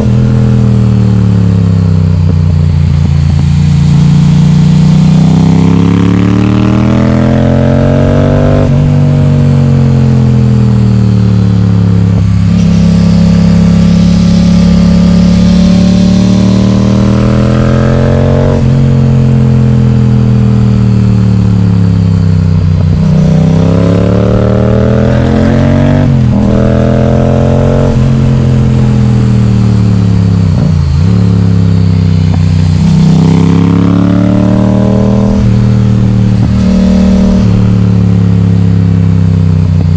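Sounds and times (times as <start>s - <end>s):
loud motorcycle engine accelerating: 0.0s - 39.9s.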